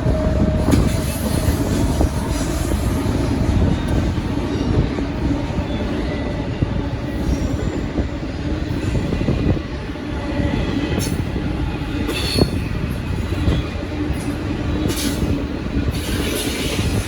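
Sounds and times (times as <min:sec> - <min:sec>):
freight train cars rolling past: 0:00.0 - 0:17.0.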